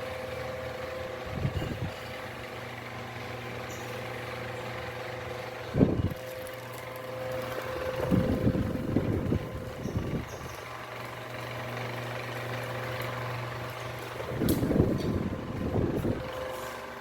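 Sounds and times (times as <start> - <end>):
desk fan running: 0.0 - 17.0
low rumbling gusts: 5.7 - 6.2, 7.9 - 10.4, 14.2 - 16.3.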